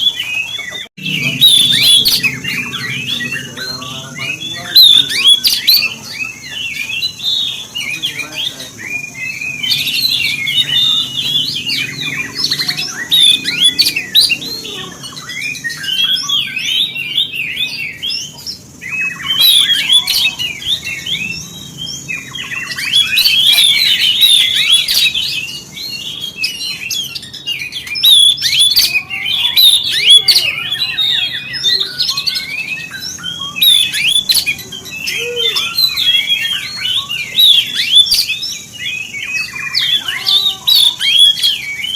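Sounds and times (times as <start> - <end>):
bird singing whistles and chirps: 0.0 - 41.9.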